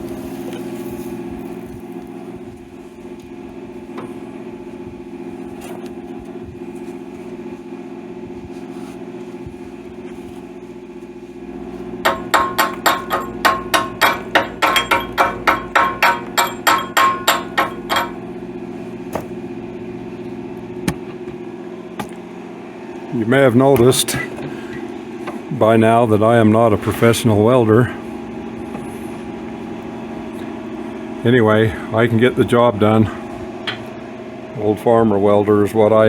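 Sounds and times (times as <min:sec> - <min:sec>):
machine hum: 0:00.0 - 0:36.0
hammer striking steel: 0:12.0 - 0:18.4.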